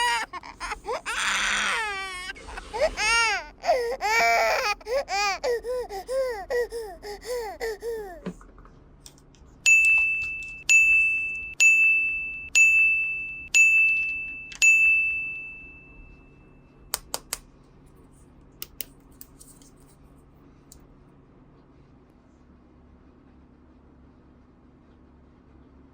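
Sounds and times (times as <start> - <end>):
small bell chime: 9.7 - 16.8.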